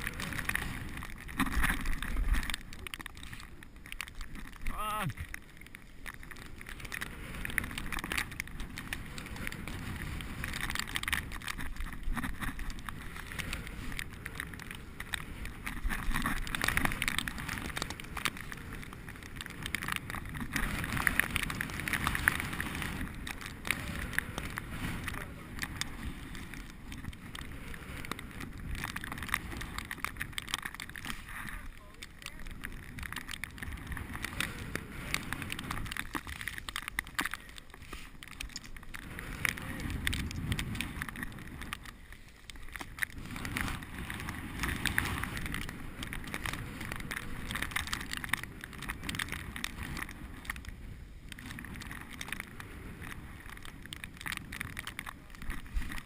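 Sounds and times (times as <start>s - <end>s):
bicycle rattles and clicks: 0.0s - 56.0s
wind and tyre rush: 0.0s - 56.0s.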